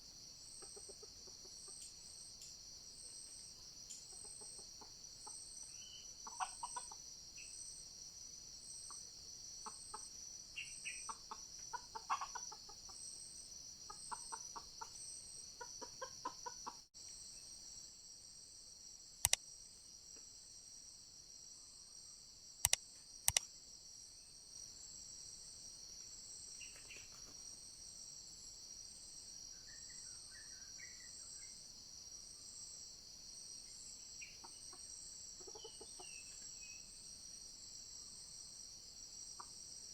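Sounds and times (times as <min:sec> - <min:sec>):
forest insects droning: 0:00.0 - 0:39.9
junglefowl clucking: 0:04.1 - 0:07.0, 0:09.6 - 0:13.0, 0:13.9 - 0:15.0, 0:15.6 - 0:16.8, 0:35.4 - 0:36.2
sharp clicks: 0:22.7 - 0:23.5.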